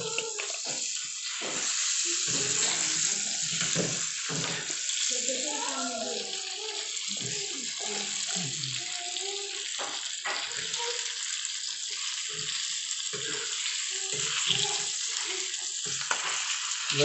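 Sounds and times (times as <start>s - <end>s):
low voices talking: 0.0s - 11.2s
fish sizzling in hot oil: 0.0s - 17.0s.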